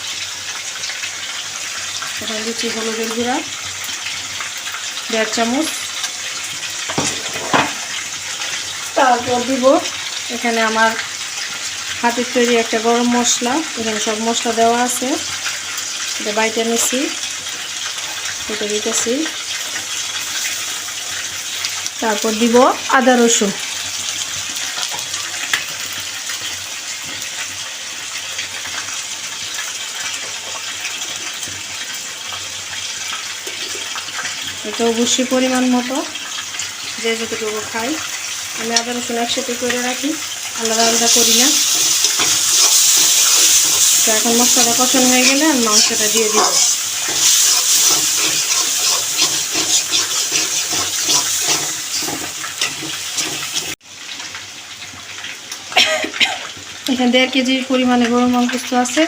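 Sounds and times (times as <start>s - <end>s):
chicken sizzling in hot oil: 0.0s - 59.0s
spoon scraping a pan: 40.6s - 53.8s.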